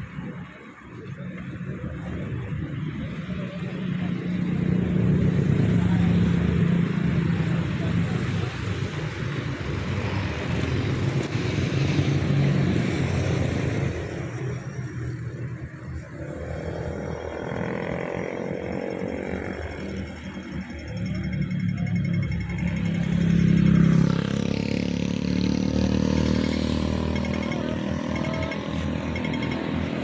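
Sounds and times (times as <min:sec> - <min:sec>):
vehicle engines passing: 0:00.0 - 0:30.0.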